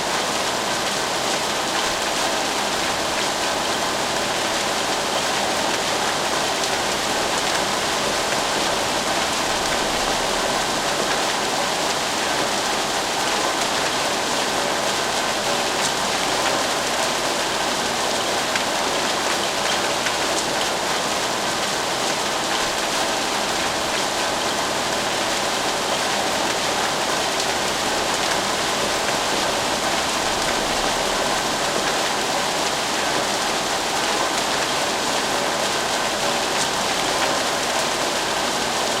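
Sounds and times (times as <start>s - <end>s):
steady rain hiss: 0.0s - 39.0s.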